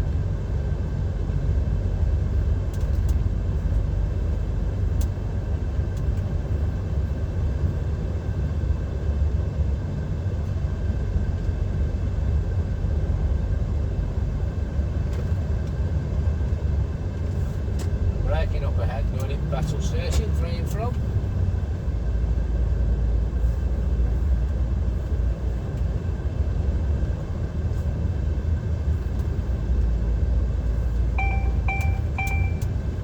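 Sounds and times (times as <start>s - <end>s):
lorry engine rumble: 0.0s - 33.0s
road noise: 0.0s - 33.0s
faint steady whine: 29.0s - 33.0s.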